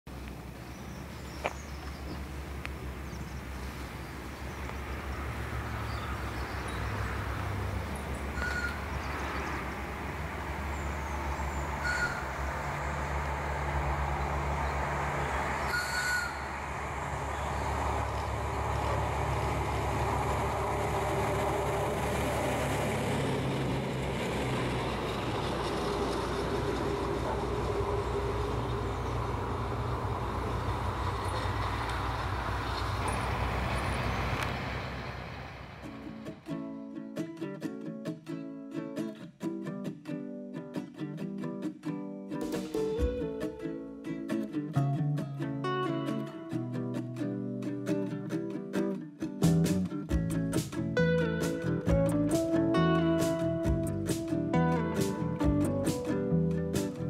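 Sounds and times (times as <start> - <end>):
train rumbling on rails: 2.2 - 36.5.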